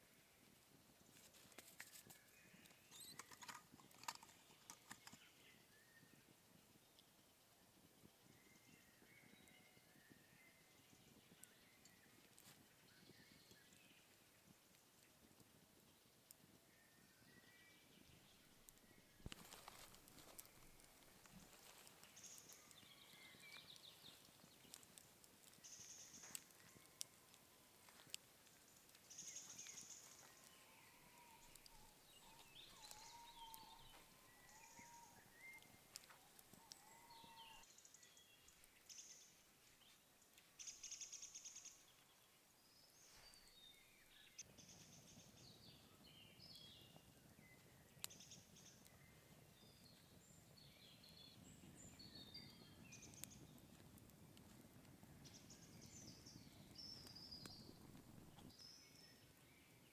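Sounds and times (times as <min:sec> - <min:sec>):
soft low rustle: 0:00.7 - 0:03.1, 0:17.9 - 0:38.8
birds chirping and whistling: 0:02.5 - 0:06.2, 0:29.1 - 0:36.0.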